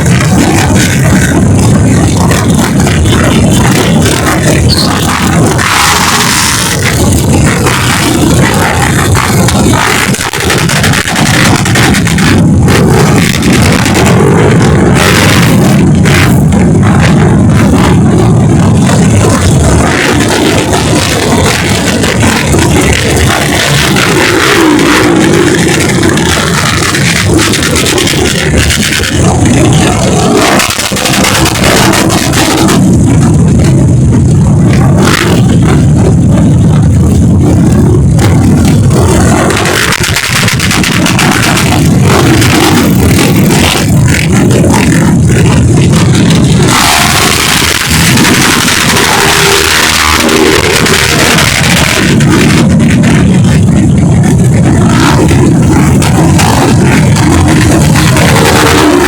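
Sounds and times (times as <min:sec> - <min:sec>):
motorcycle engines running: 0:00.0 - 0:59.0.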